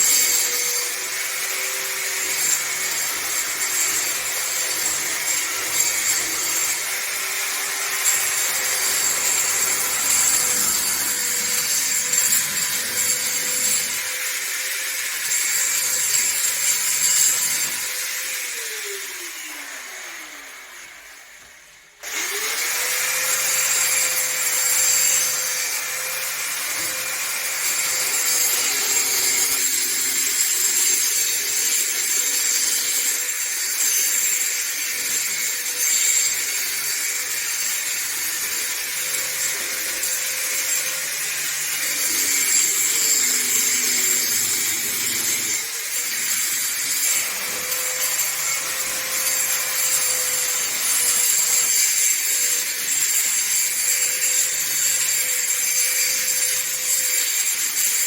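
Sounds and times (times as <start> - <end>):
electric power tool motor whine: 0.0 - 58.0.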